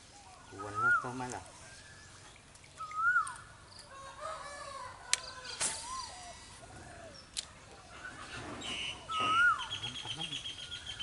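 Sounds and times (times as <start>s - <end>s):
rooster crowing: 3.9s - 5.3s.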